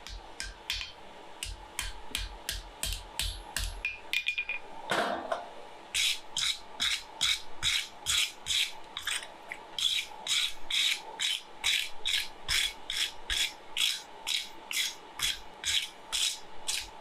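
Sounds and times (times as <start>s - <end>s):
hand tool scraping steel: 6.0s - 17.0s.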